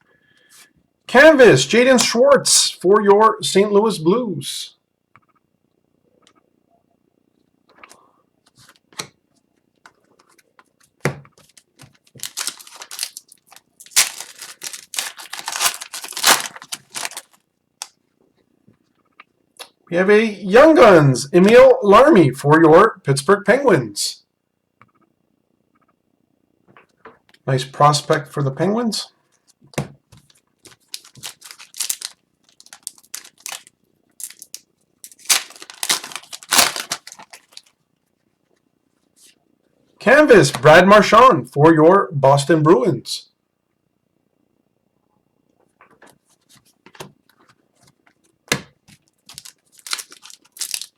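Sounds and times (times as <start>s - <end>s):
trading cards rustling and clicking: 9.8s - 17.9s, 30.2s - 37.7s, 46.0s - 50.9s
foil wrapper tearing and crinkling: 11.4s - 17.9s, 30.2s - 37.8s, 48.9s - 50.9s.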